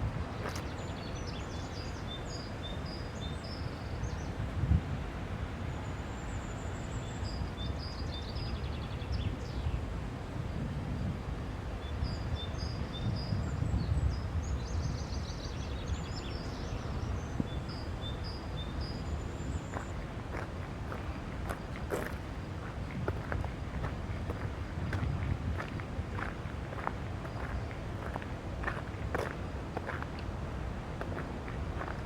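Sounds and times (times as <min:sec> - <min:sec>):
songbird singing: 0:11.8 - 0:30.3.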